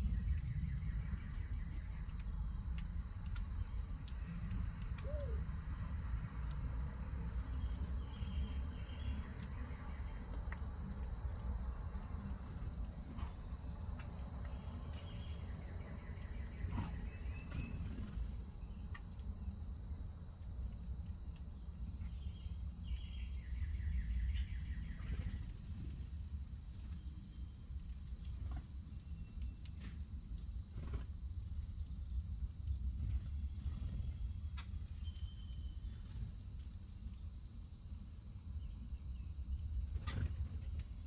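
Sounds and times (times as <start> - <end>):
birds chirping: 0.0 - 19.5
low outdoor rumble: 0.0 - 41.0.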